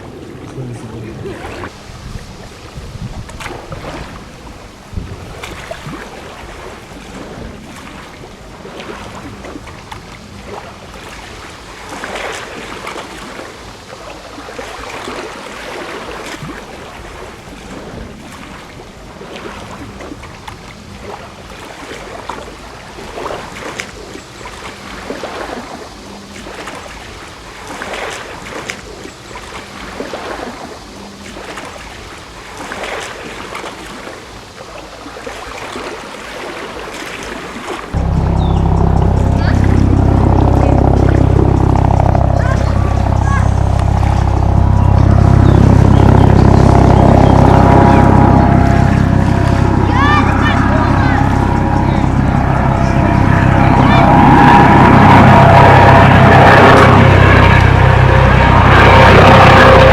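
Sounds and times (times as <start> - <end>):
wind on microphone: 0.0 - 7.6
small waves lapping: 0.0 - 38.0.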